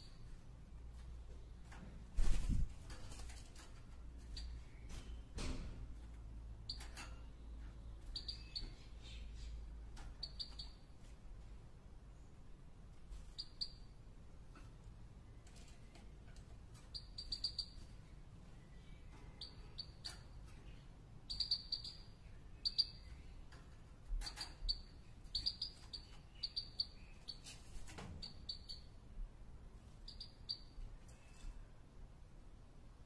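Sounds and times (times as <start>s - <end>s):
bird chirping: 4.2s - 5.4s, 6.5s - 11.1s, 13.2s - 14.0s, 15.3s - 29.0s, 29.9s - 31.4s.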